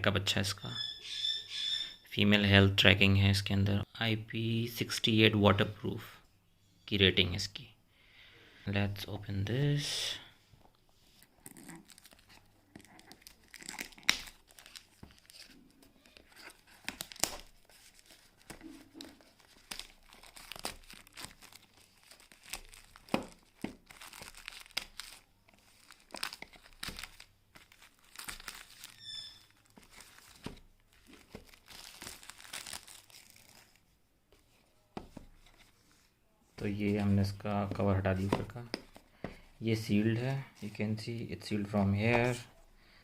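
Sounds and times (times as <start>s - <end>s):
packaging tearing and crinkling: 11.4s - 33.8s.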